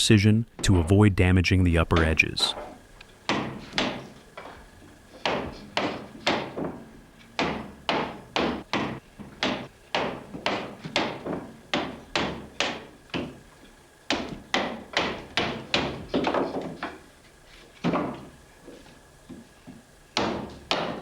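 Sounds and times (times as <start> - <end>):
axe chopping wood: 3.3 - 13.4, 14.1 - 17.0, 20.2 - 21.0.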